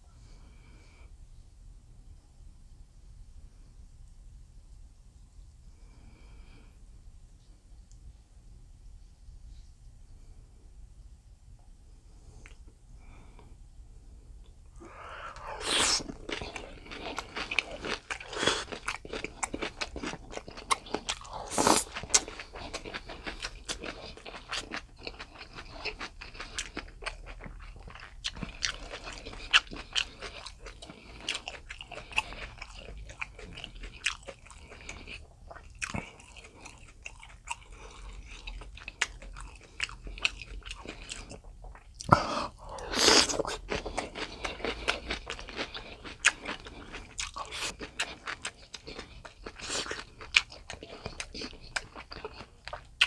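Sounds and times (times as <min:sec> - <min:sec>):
loud bites or slurps: 0:15.4 - 0:16.2
wet chewing clicks and smacks: 0:15.4 - 0:42.2, 0:43.1 - 0:53.0.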